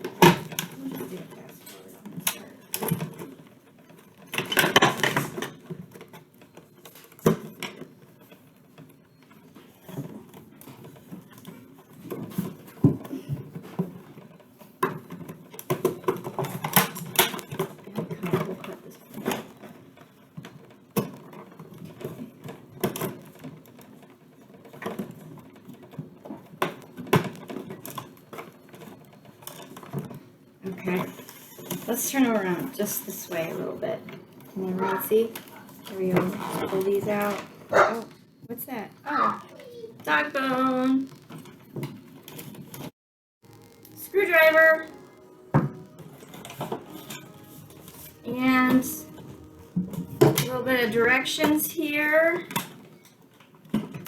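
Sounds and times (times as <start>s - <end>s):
cardboard scraping: 34.6s - 38.1s, 43.5s - 52.8s
packaging rustling: 43.5s - 51.6s.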